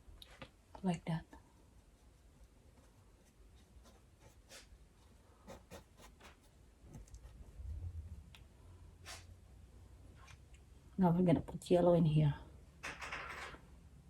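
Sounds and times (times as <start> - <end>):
paintbrush scratching on canvas: 1.5 - 8.1.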